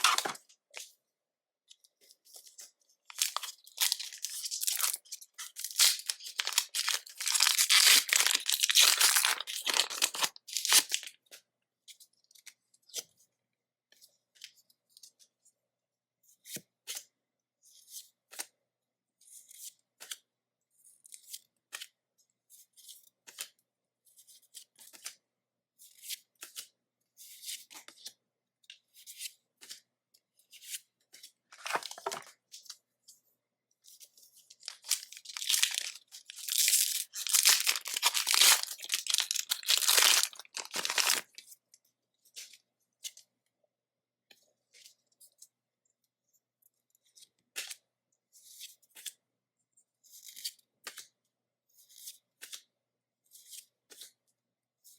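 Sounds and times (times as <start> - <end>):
foil wrapper crinkling and tearing: 0.0 - 0.4, 3.1 - 11.1, 31.6 - 32.2, 34.6 - 41.4
trading cards flicking and rustling: 0.0 - 0.4, 3.1 - 11.0, 31.6 - 32.3, 34.6 - 41.4.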